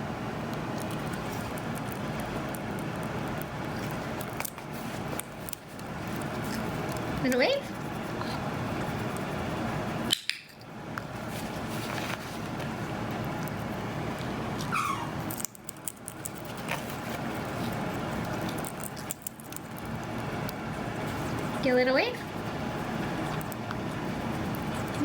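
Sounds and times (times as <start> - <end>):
parrot chirp: 14.6 - 15.2.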